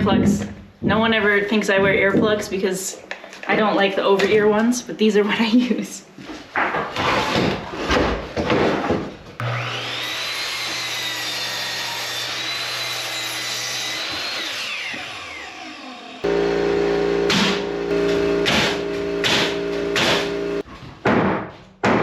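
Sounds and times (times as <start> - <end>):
electric power saw whining: 9.4 - 20.7.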